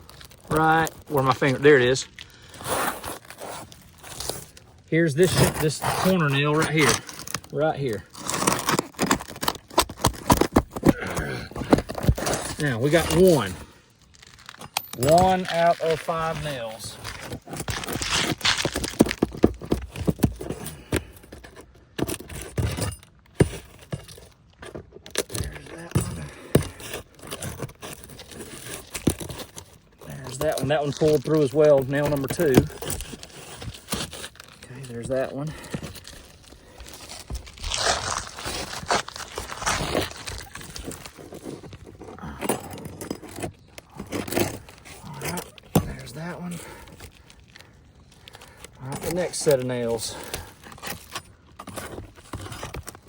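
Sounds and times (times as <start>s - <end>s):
shingles being pried up: 0.0s - 53.0s.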